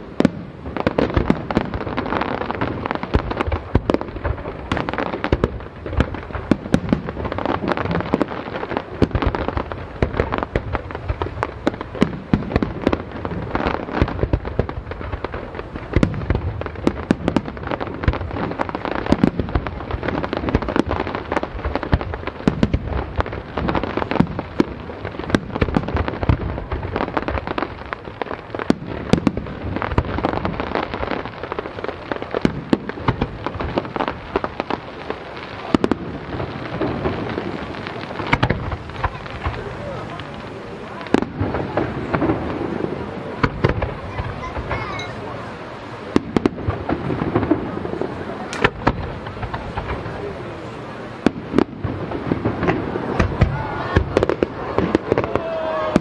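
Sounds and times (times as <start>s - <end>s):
rumble of fireworks shells: 0.0s - 27.8s, 35.6s - 44.8s, 46.1s - 50.4s
fireworks bangs and crackles: 0.0s - 56.0s.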